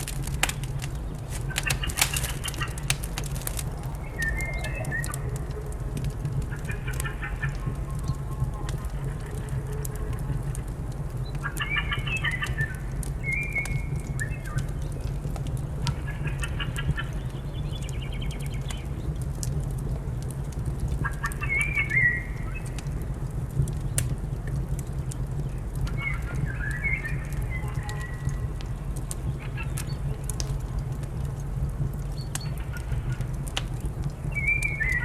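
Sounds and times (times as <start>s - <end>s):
fireplace crackling: 0.0s - 12.1s, 22.3s - 27.6s, 28.2s - 35.0s
songbird singing: 34.2s - 35.0s.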